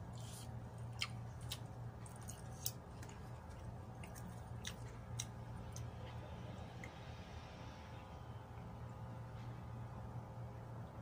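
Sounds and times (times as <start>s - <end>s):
person chewing food: 0.0s - 7.0s.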